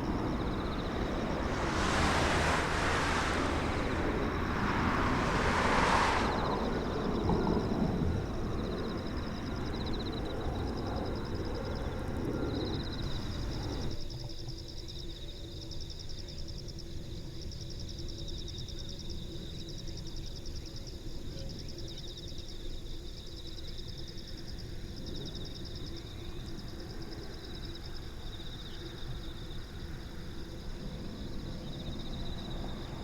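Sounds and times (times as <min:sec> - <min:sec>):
low steady rumble: 0:00.0 - 0:10.5
insects chirping in trills: 0:00.0 - 0:14.2, 0:25.3 - 0:33.0.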